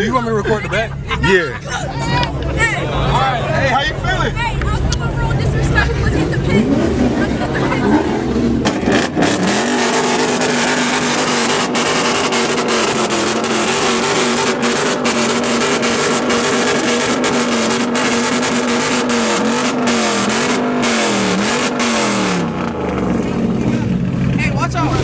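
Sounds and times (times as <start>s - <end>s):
car engine revving on limiter: 5.6s - 24.4s.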